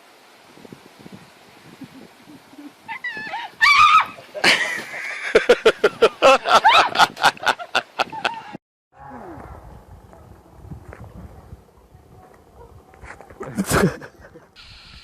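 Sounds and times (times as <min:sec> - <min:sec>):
animal calling loudly: 0:02.6 - 0:04.3.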